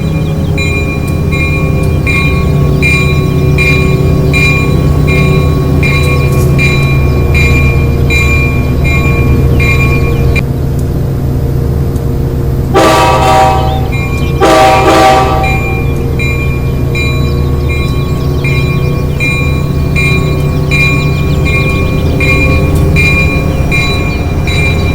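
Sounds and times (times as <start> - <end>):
bell ringing: 0.0 - 10.4, 15.1 - 24.9
train rumble: 0.0 - 24.9
train horn blasts: 12.7 - 16.0.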